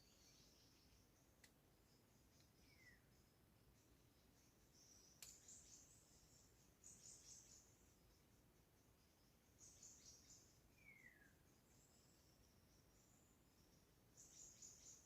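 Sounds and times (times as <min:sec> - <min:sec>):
sharp click: 0:05.2 - 0:05.5.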